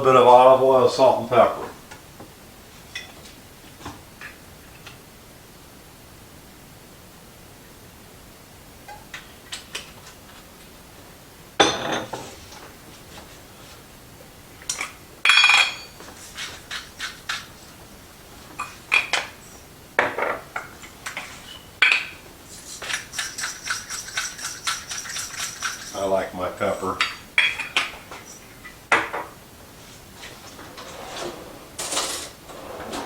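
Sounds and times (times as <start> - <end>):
metal utensils clinking on pot: 14.7 - 16.1, 22.8 - 26.1
pepper mill grinding: 22.5 - 26.1.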